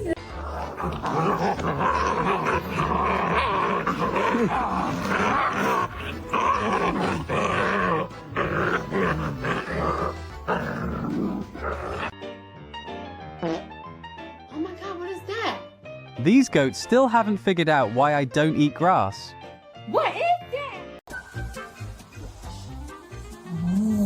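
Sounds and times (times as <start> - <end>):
dog growling: 0.0 - 12.2
background music: 0.0 - 24.0.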